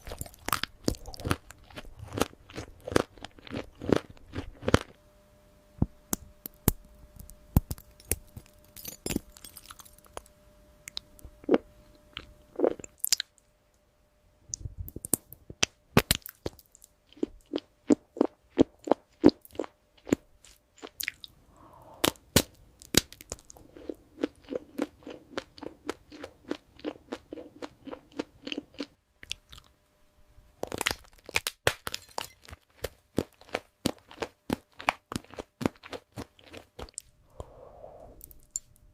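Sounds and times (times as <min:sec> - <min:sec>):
crunchy food chewing: 0:00.0 - 0:05.0, 0:22.0 - 0:29.7, 0:30.6 - 0:37.5.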